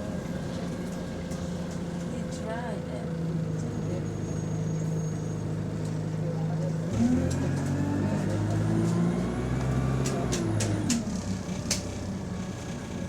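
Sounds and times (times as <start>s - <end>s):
bus engine idling and revving: 0.0s - 13.0s
rising engine whine: 6.9s - 11.4s.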